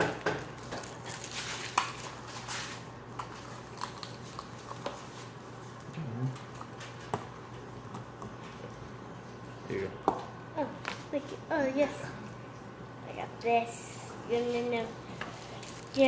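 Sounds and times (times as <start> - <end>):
plastic wrappers crinkling: 0.4 - 5.3, 15.3 - 16.0.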